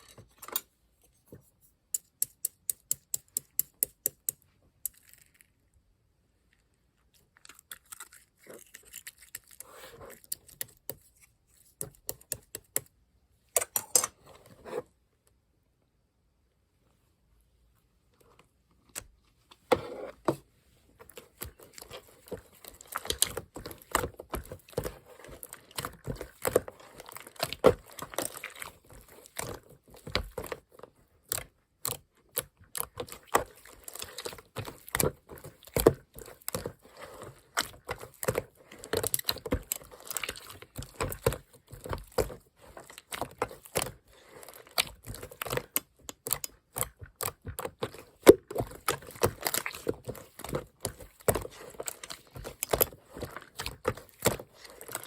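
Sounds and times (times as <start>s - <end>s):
slime squished by hand: 21.1s - 55.0s.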